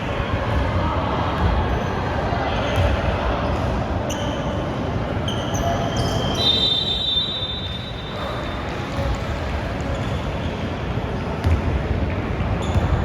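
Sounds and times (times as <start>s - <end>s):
voices of players and spectators: 0.0s - 13.0s
sneaker squeaks: 2.6s - 9.2s, 12.4s - 13.0s.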